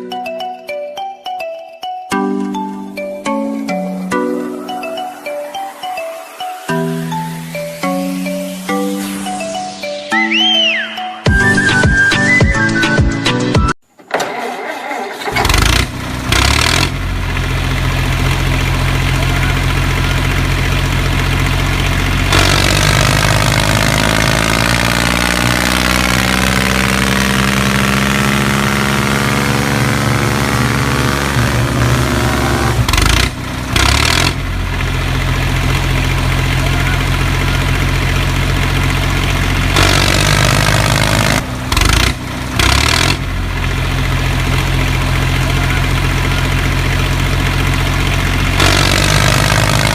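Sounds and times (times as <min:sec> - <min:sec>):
tractor engine running: 0:14.0 - 0:49.9.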